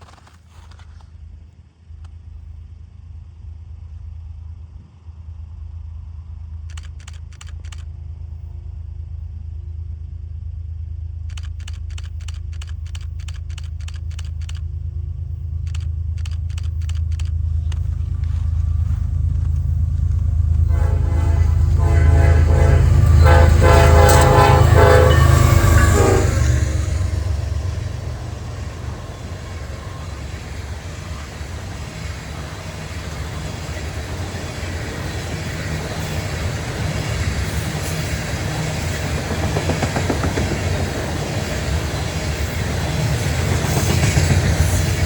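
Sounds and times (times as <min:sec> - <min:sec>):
locomotive engine rumble: 0:02.0 - 0:45.0
rapid clicking: 0:06.7 - 0:07.9, 0:11.2 - 0:14.7, 0:15.6 - 0:18.3
train horn: 0:20.6 - 0:30.4.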